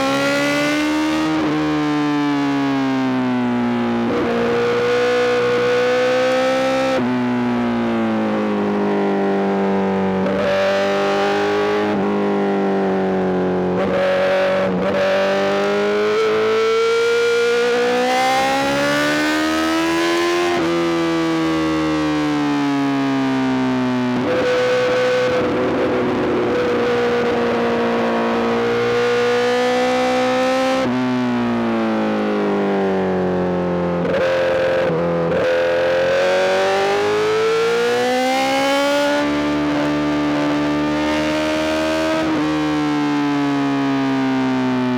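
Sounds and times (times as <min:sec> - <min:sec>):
motorcycle engine revving: 0:24.2 - 0:30.9.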